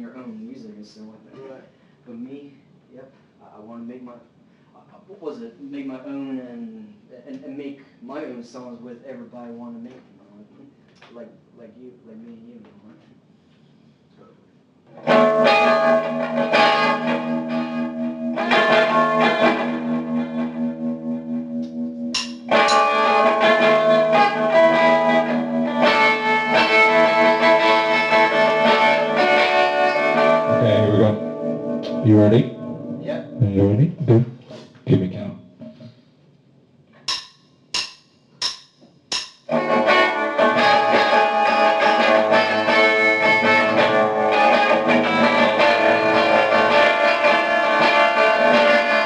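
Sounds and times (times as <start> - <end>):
guitar chords ringing: 15.0 - 34.3, 39.5 - 49.0
lo-fi rock band playing: 15.0 - 35.9, 39.1 - 49.0.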